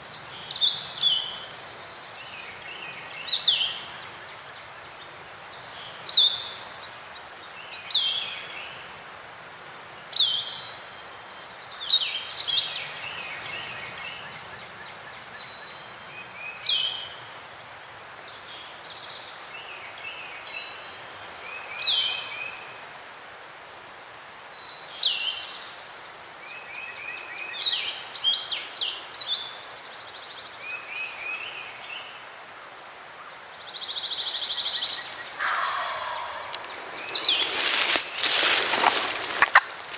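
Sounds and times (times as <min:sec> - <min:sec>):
songbirds singing: 0:00.0 - 0:22.9, 0:24.1 - 0:39.9
steady outdoor hiss: 0:00.0 - 0:39.9
buzzy bird call: 0:35.3 - 0:39.9.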